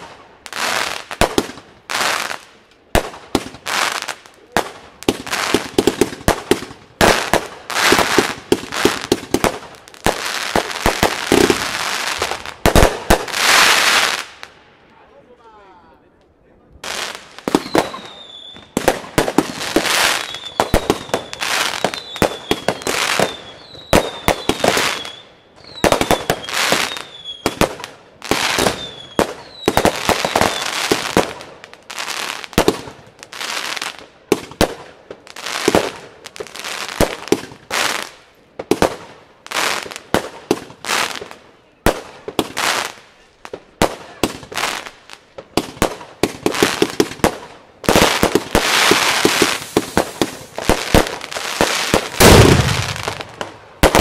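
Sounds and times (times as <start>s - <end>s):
firework shots and bursts: 0.0s - 14.5s, 16.8s - 33.0s, 39.8s - 54.0s
falling firework whistles: 17.5s - 18.8s, 19.7s - 27.6s, 28.4s - 31.0s, 48.5s - 54.0s.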